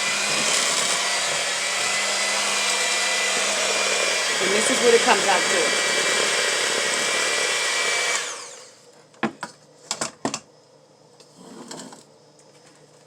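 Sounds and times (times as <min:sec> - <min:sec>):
electric mixer running: 0:00.0 - 0:08.9
soft scrape: 0:11.3 - 0:12.0.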